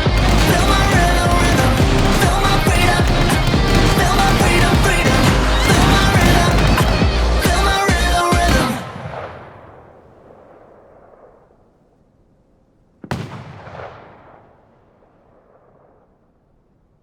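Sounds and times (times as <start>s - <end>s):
firework bang: 0.0s - 9.9s.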